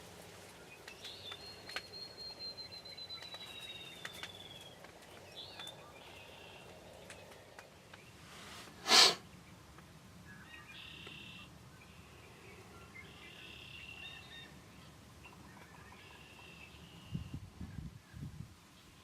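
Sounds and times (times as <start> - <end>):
high sliding bird whistle: 8.8 - 9.2.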